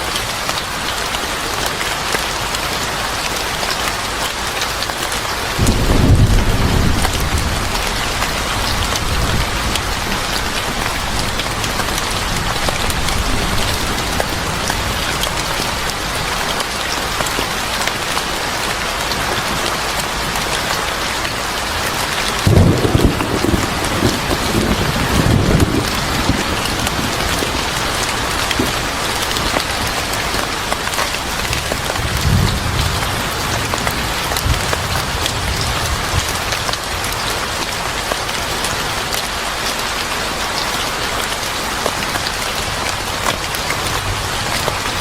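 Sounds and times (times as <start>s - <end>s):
heavy rain: 0.0s - 45.0s
rolling thunder: 5.6s - 14.5s, 22.4s - 30.4s.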